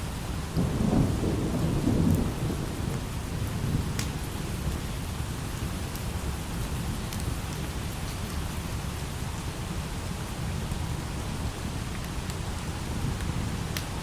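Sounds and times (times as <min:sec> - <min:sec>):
light rain falling: 0:00.0 - 0:14.0
distant thunder rumbling: 0:00.5 - 0:04.4.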